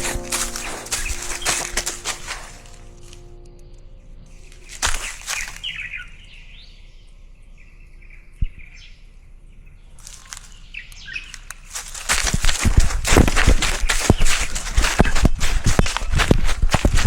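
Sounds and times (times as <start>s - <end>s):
small birds chirping: 0.0s - 17.0s
dog scuffs and thumps: 11.8s - 17.0s.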